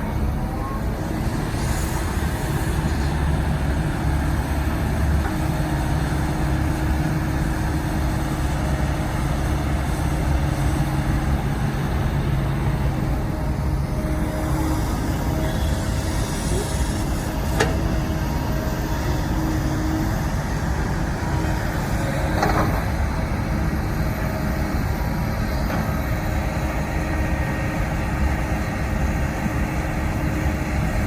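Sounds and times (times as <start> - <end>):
heavy machinery diesel engine rumble: 0.0 - 31.0.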